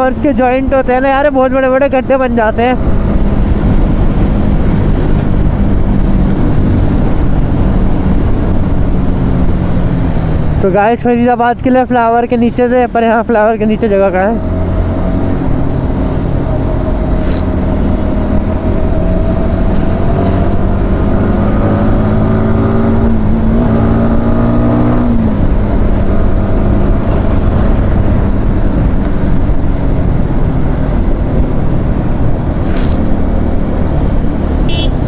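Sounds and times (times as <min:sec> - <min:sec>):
wind rush over microphone: 0:02.5 - 0:10.5, 0:14.4 - 0:34.7
motorcycle engine at speed: 0:14.2 - 0:35.0.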